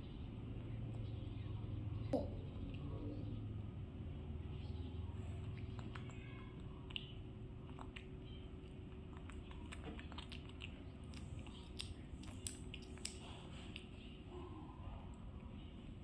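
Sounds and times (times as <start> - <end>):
low room hum: 0.0 - 16.0
chewing mouth smacks: 5.3 - 14.1.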